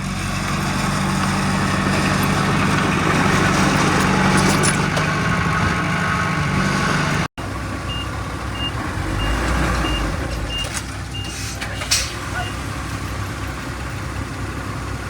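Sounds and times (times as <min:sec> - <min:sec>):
heavy machine diesel engine running: 0:00.0 - 0:15.0
backup alarm beeping: 0:07.9 - 0:11.4.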